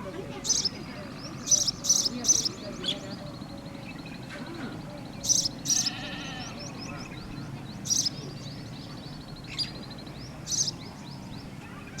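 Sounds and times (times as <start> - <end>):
birds calling: 0.0 - 12.0
quick bird chirping: 0.4 - 4.1, 5.0 - 8.2.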